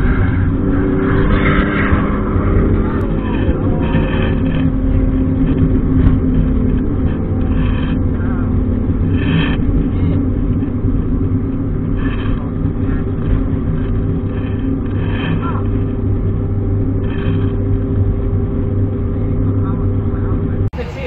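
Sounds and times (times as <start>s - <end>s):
car engine running: 0.0s - 21.0s
road noise: 0.0s - 21.0s
wind: 0.0s - 21.0s.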